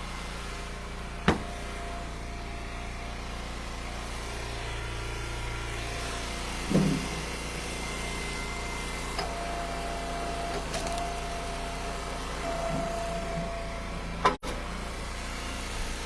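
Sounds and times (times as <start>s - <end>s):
log splitter engine running: 0.0s - 16.0s.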